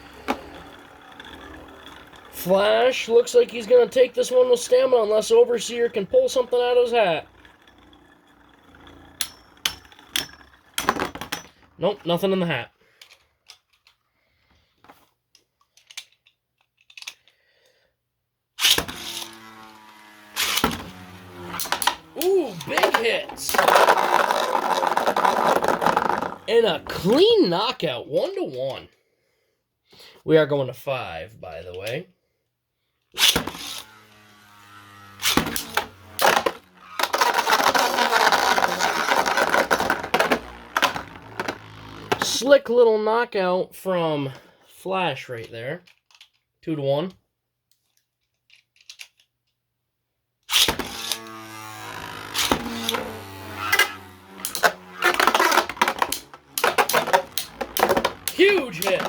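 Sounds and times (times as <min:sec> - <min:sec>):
spinning tops whirring: 0:00.0 - 0:11.4, 0:18.6 - 0:27.4, 0:33.2 - 0:42.5, 0:50.5 - 0:59.0
spinning tops launching: 0:00.0 - 0:11.5, 0:18.6 - 0:27.1, 0:33.2 - 0:42.5, 0:50.5 - 0:59.0
launcher click and whir: 0:18.6 - 0:22.1, 0:50.6 - 0:59.0.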